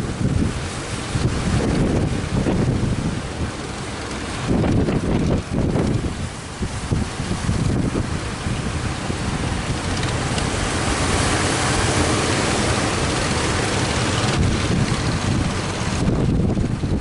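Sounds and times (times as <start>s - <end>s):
surf washing: 0.0s - 17.0s
wind buffeting microphone: 0.0s - 17.0s.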